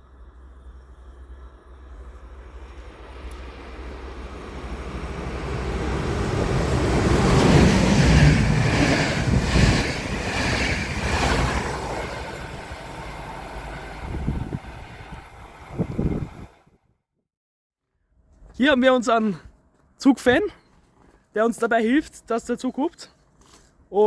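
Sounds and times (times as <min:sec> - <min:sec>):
train passing: 0:00.0 - 0:16.7.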